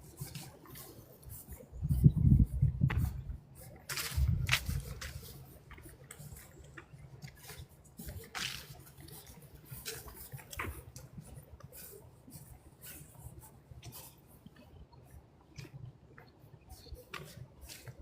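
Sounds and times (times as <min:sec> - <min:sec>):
footsteps crunching dry leaves: 0:03.9 - 0:05.5, 0:07.3 - 0:10.8.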